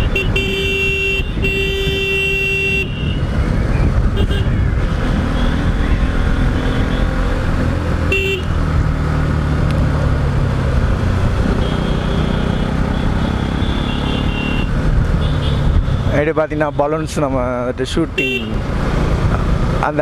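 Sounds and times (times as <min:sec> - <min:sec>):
motorcycle horn: 0:00.0 - 0:03.3, 0:04.1 - 0:07.2, 0:08.1 - 0:08.5, 0:11.6 - 0:16.0, 0:18.2 - 0:18.6.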